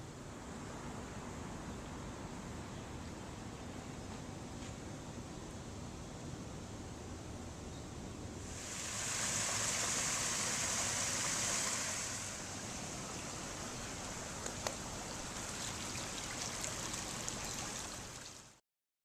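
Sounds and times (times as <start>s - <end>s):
running water hiss: 8.4s - 18.6s.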